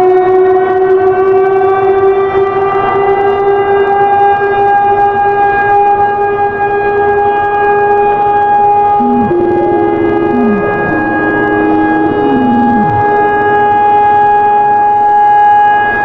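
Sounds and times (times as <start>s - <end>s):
warning siren alert tone: 8.8s - 14.5s.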